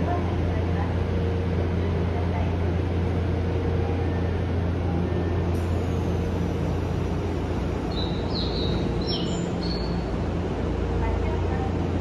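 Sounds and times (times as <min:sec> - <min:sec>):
stationary electric train humming: 0:00.0 - 0:12.0
small birds chirping: 0:07.9 - 0:10.1.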